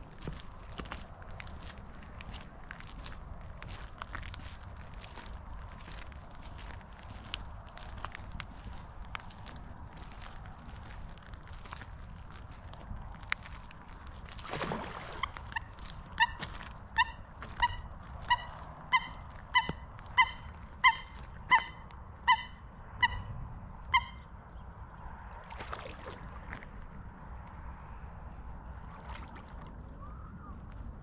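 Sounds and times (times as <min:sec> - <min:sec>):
bird calling: 0:15.0 - 0:23.3, 0:23.9 - 0:24.3.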